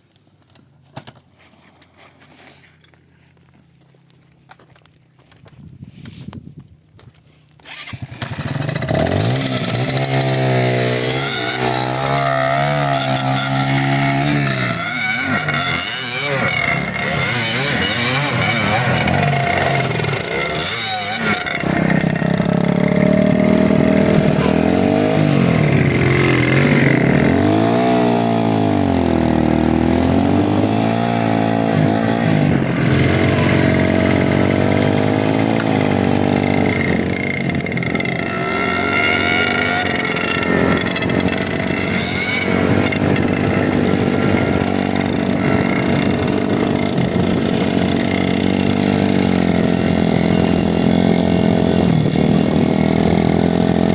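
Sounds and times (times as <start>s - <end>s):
motorcycle engine revving: 7.6s - 53.9s.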